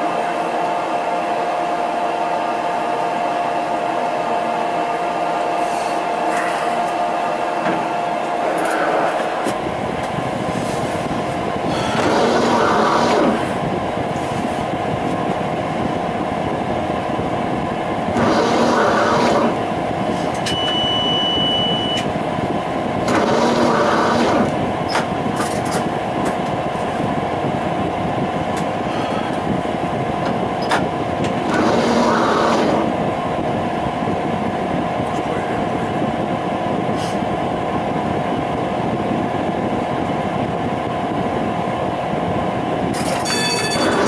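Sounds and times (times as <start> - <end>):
tram electrical hum: 0.0 - 44.0
tram rolling noise: 0.0 - 44.0
short high beep: 20.5 - 22.1.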